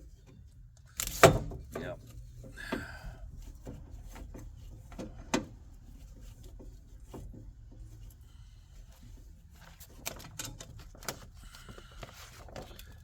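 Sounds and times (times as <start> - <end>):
car door parts clicking and knocking: 1.0 - 2.0.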